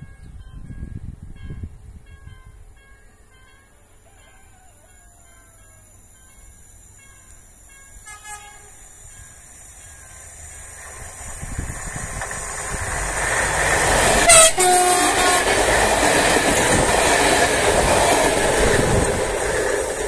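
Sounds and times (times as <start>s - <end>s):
passenger train passing: 0.0s - 20.0s
train horn blast: 8.0s - 9.0s, 13.9s - 16.1s
wheel clatter on rails: 9.8s - 20.0s.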